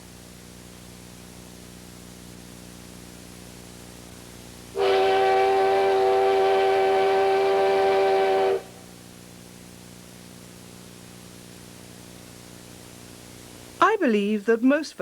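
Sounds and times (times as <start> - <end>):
steam locomotive whistle blast: 4.8 - 8.9.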